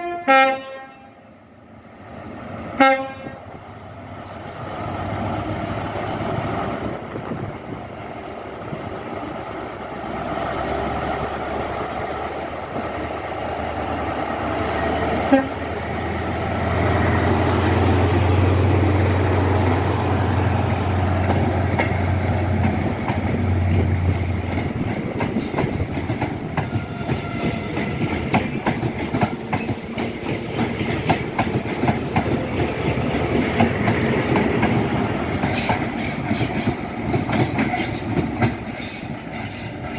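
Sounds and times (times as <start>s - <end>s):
train engine drone: 0.0s - 39.9s
wheels clattering over rail joints: 20.6s - 39.9s.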